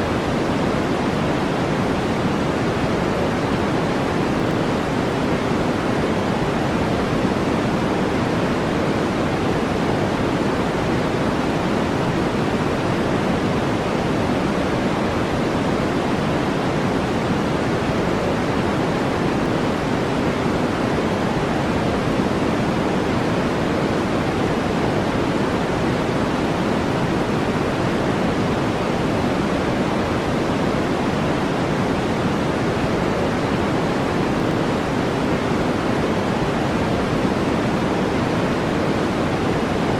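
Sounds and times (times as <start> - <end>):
deep steady noise rush: 0.0 - 39.9.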